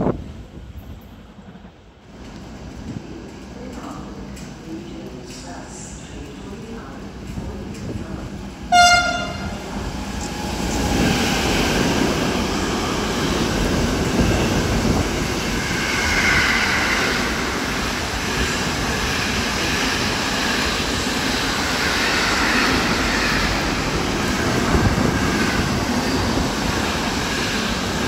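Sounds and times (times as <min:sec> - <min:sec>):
freight train rumble and clatter: 0:00.0 - 0:28.0
locomotive horn blast: 0:08.7 - 0:09.6.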